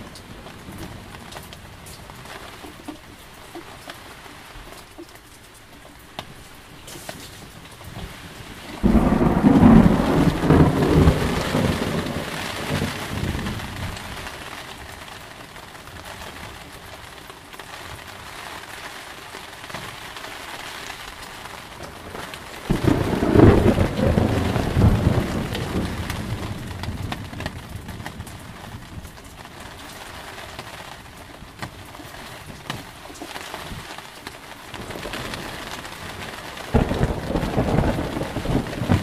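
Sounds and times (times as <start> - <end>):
steady rain: 0.0 - 39.0
thunder rumbling: 8.5 - 14.4, 21.8 - 29.2, 34.8 - 39.0.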